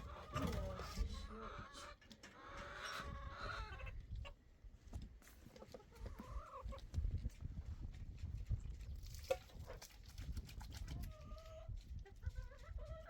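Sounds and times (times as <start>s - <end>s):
chickens clucking: 0.0s - 4.5s, 5.4s - 7.3s, 9.3s - 13.0s.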